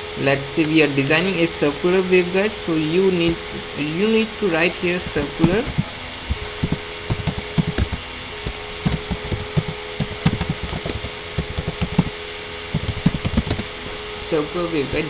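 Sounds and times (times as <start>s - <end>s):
faint steady hum: 0.0s - 15.0s
keyboard typing: 3.2s - 14.0s.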